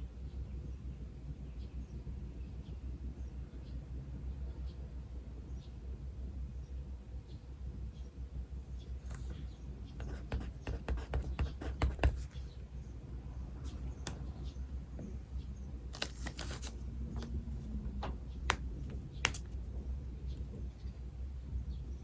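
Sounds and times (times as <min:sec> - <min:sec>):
pen scratching on paper: 0:10.0 - 0:12.6.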